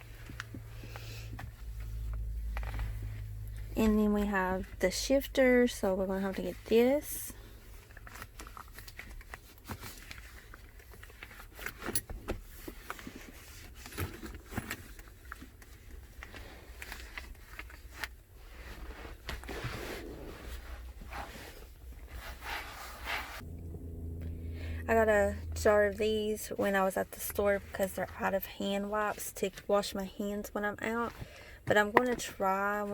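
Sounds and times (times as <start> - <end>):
wipe rubbing and scraping: 17.8 - 23.4.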